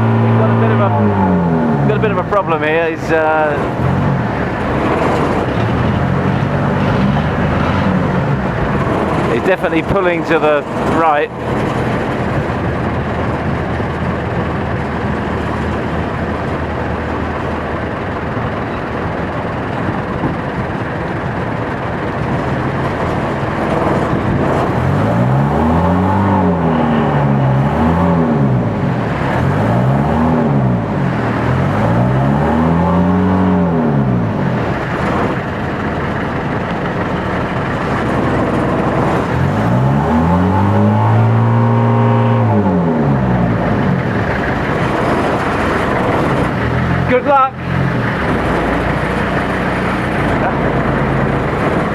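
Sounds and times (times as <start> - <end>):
small boat motor revving: 0.0 - 51.9.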